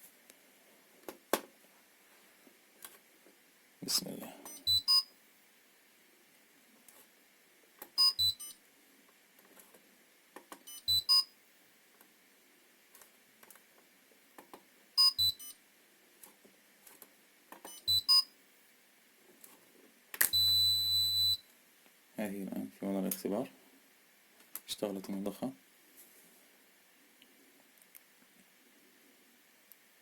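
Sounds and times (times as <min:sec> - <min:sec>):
high electronic beeps: 0:04.4 - 0:05.1, 0:08.0 - 0:08.6, 0:10.7 - 0:11.3, 0:15.0 - 0:15.5, 0:17.7 - 0:18.3.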